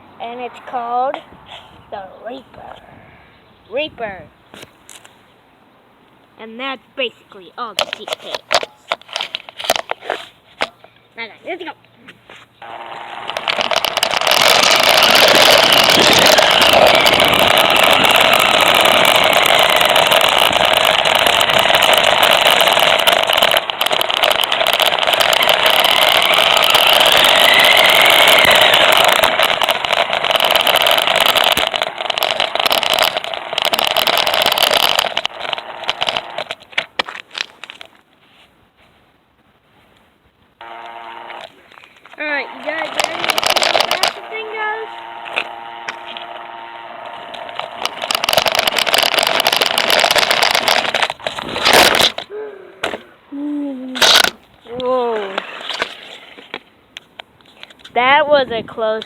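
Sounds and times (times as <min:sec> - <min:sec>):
toy car electric motor whining: 0:12.6 - 0:37.1, 0:40.6 - 0:53.1, 0:54.0 - 0:56.6.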